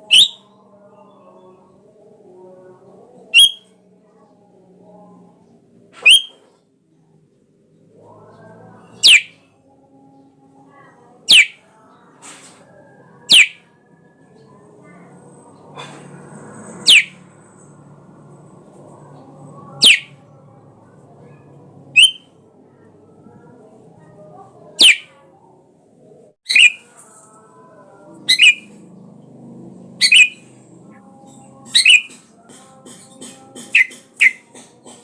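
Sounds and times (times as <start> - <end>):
bird downward-sweeping calls: 0.0 - 0.5, 3.4 - 3.6, 6.0 - 6.4, 9.0 - 9.4, 11.3 - 11.6, 13.3 - 13.6, 16.8 - 17.2, 19.8 - 20.2, 22.0 - 22.3, 24.8 - 25.1, 26.5 - 26.8, 28.2 - 28.8, 30.0 - 30.5, 31.7 - 32.2.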